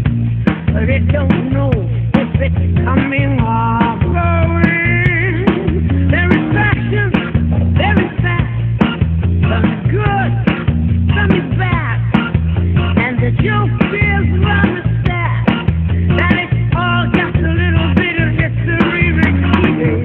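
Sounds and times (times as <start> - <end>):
upbeat instrumental song: 0.0 - 20.0.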